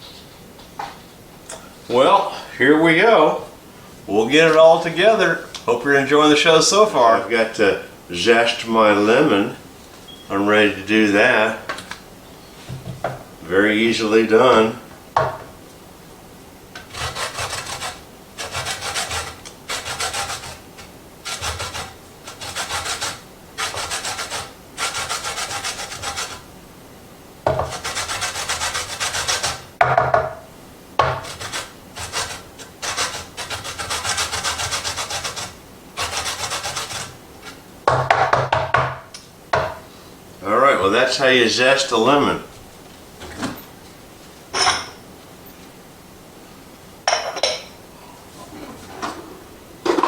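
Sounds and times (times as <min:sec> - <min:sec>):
zester scraping lemon rind: 0:16.8 - 0:26.5, 0:27.6 - 0:29.7, 0:31.2 - 0:37.6.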